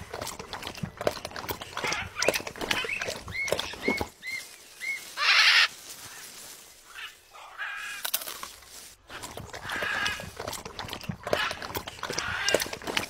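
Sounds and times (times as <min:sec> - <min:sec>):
bird chirps: 0:02.0 - 0:05.3
harsh bird squawk: 0:02.8 - 0:06.2.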